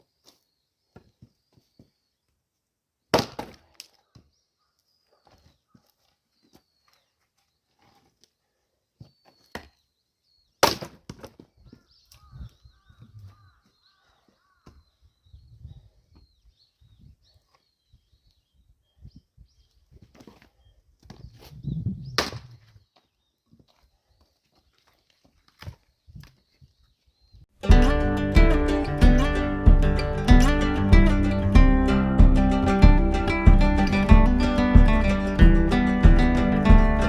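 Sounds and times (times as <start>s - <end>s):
axe striking firewood: 3.2s - 3.8s, 10.6s - 11.4s
birdsong chirps: 4.0s - 7.8s, 8.8s - 10.6s, 11.4s - 24.9s, 25.8s - 37.0s.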